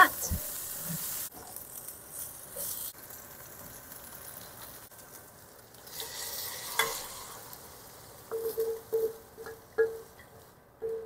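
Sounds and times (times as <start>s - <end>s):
food sizzling in a wok: 0.0s - 10.8s
rustle of ingredients tossed: 0.4s - 9.1s.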